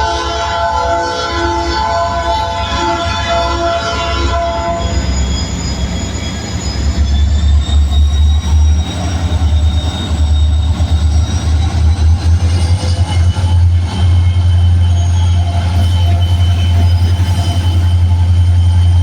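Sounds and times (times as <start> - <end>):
train air horn: 0.0 - 5.1
diesel locomotive rumble: 0.0 - 19.0
wheels squealing on rails: 0.7 - 19.0.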